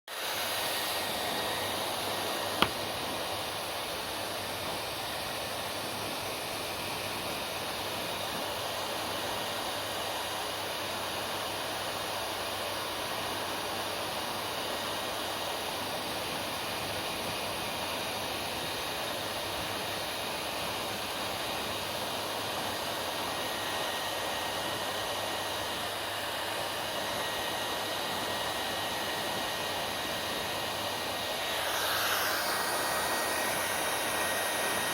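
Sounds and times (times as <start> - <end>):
hair dryer running: 0.1 - 34.9.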